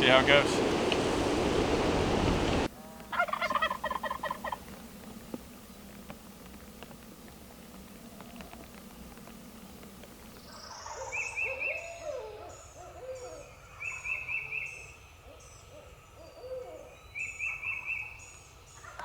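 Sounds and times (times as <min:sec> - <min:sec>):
birds chirping and trilling: 0:08.1 - 0:19.0
owl hooting: 0:10.5 - 0:18.1.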